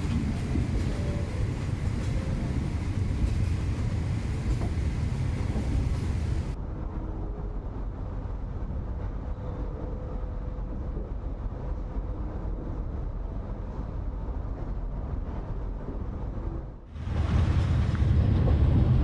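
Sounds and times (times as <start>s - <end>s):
train rumbling along track: 0.0s - 19.0s.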